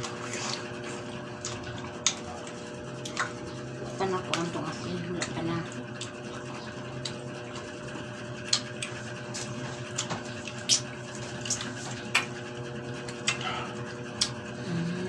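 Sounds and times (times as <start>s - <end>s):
chewing and lip-smacking: 0.0s - 14.7s
steady low hum: 0.0s - 15.0s.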